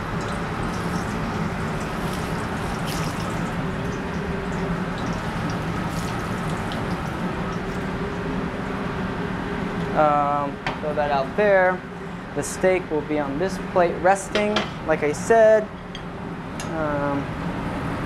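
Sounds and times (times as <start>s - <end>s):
food sizzling in frying pans: 0.0s - 8.0s
kitchen exhaust hood hum: 0.0s - 18.0s.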